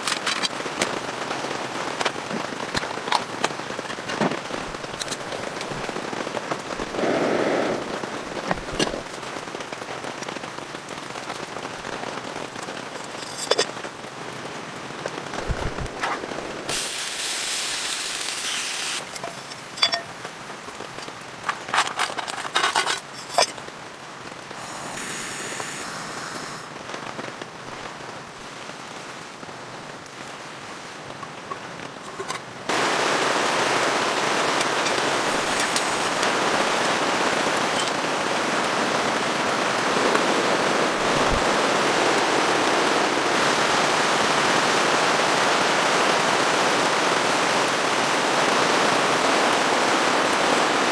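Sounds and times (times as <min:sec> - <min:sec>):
sharp clicks and pops: 0:00.0 - 0:10.4
rain hiss: 0:00.0 - 0:50.9.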